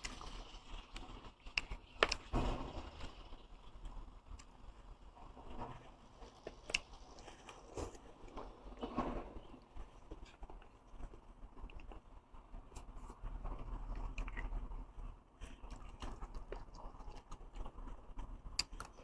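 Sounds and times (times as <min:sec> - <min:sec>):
person chewing: 0:12.7 - 0:19.0.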